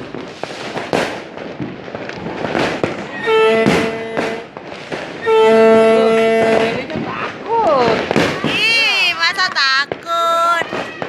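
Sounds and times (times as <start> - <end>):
firecrackers banging and crackling: 0.0 - 11.0
horn blowing held note: 3.1 - 4.5, 5.2 - 6.8.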